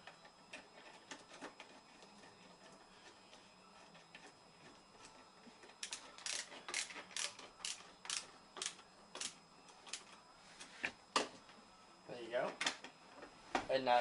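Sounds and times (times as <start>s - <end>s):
screwdriver clicking: 5.8s - 9.4s.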